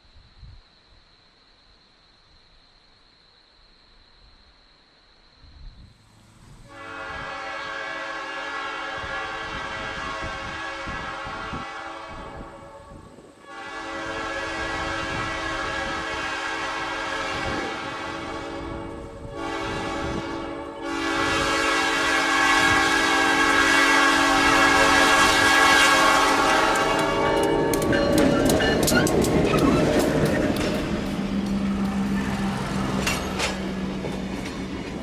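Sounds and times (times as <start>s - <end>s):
locomotive air horn blasts: 6.6s - 34.0s.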